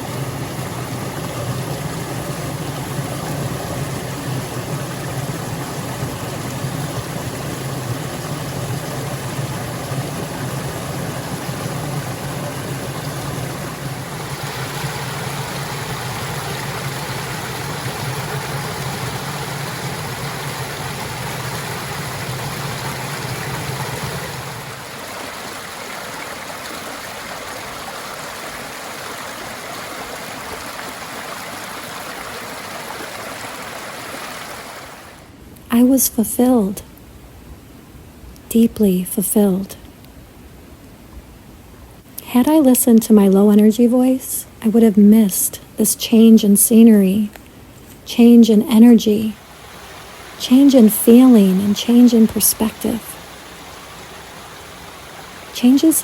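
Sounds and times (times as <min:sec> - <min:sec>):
stream water rushing: 0:00.0 - 0:35.4, 0:48.8 - 0:56.0.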